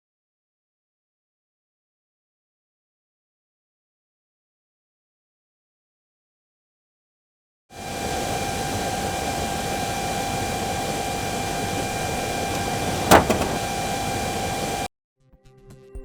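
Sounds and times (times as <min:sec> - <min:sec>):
steady whine: 0:07.8 - 0:14.9
car door banging: 0:08.0 - 0:14.9.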